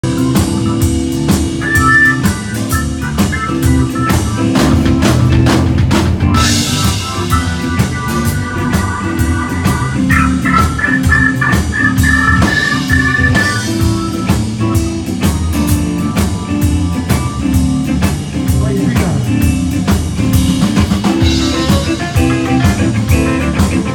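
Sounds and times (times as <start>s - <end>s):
bass guitar: 0.0s - 23.9s
drum kit beat: 0.0s - 23.9s
electric guitar: 0.0s - 23.9s.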